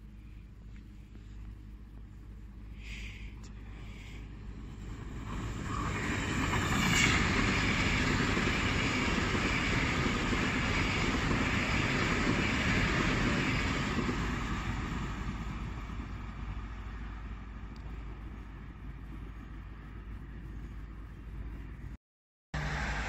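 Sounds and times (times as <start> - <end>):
train passing at speed: 4.1 - 18.6, 22.6 - 23.0.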